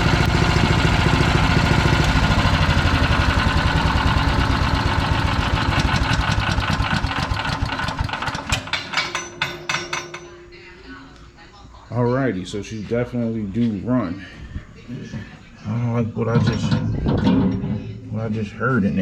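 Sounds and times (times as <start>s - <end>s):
engine clicks coasting down: 0.0s - 8.9s
wood chipper engine running: 0.0s - 9.4s.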